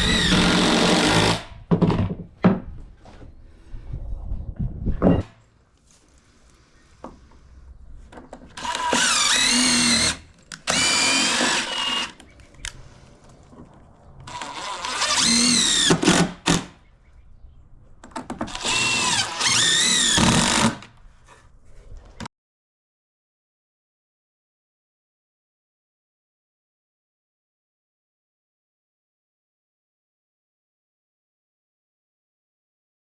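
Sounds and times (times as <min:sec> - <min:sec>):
power drill running: 0:00.0 - 0:01.5, 0:08.6 - 0:12.2, 0:14.3 - 0:16.7, 0:18.5 - 0:20.9.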